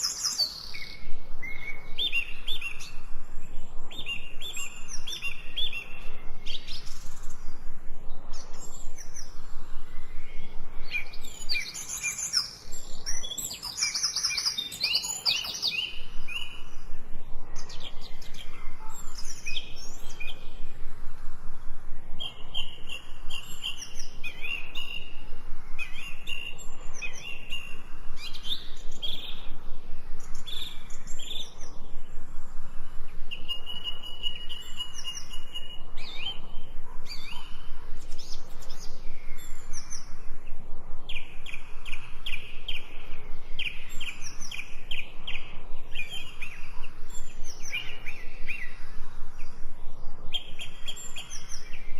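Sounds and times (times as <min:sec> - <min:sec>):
birds singing and calling: 0:00.0 - 0:51.9.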